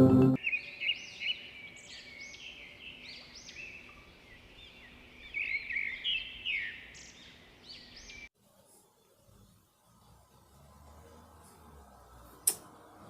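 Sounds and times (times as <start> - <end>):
recorded birdsong through phone speaker: 0.4 - 8.3.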